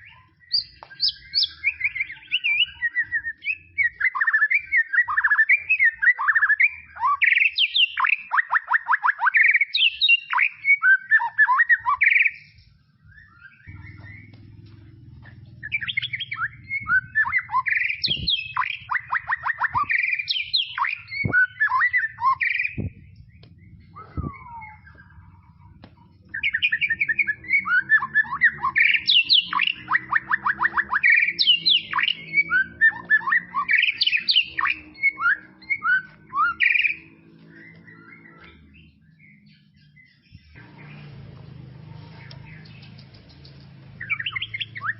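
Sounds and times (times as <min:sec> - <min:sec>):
songbird singing trills and whistles: 0:00.0 - 0:41.2, 0:41.9 - 0:44.9
steady low hum: 0:20.9 - 0:28.7.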